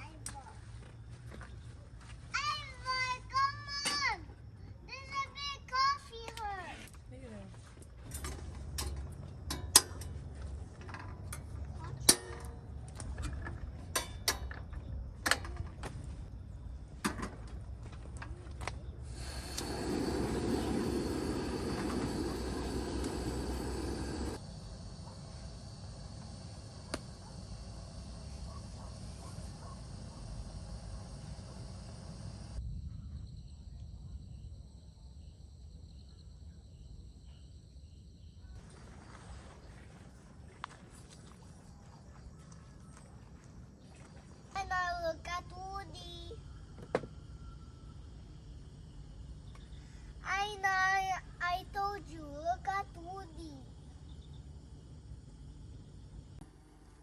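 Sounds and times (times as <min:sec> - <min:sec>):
crickets trilling: 0:07.0 - 0:57.0
steady rushing noise: 0:19.1 - 0:32.6.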